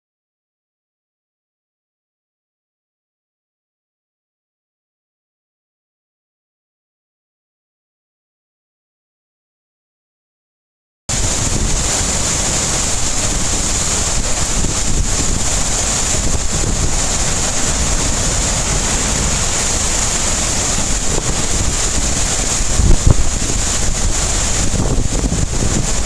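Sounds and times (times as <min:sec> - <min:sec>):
hiss of wind-driven rain: 0:11.1 - 0:26.0
wind buffeting microphone: 0:11.1 - 0:26.0.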